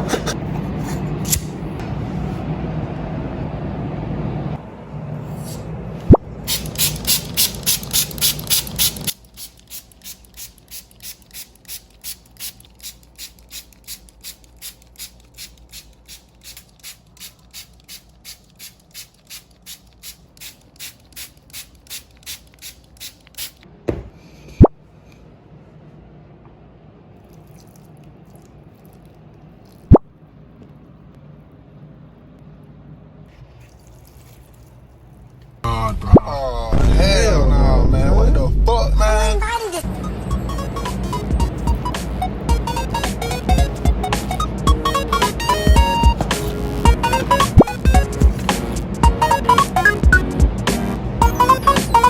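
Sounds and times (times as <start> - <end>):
spray bottle misting: 6.4 - 23.6, 42.6 - 49.2.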